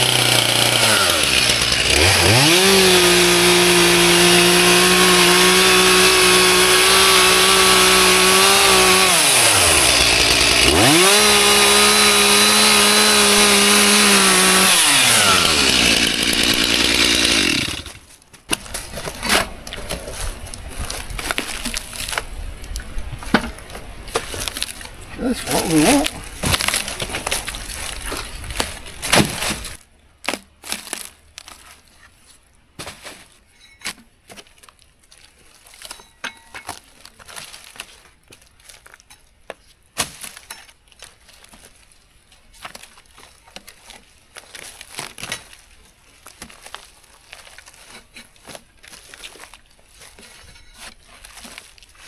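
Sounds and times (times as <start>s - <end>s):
bark cracking and peeling off log: 0.0s - 22.8s, 24.1s - 31.7s.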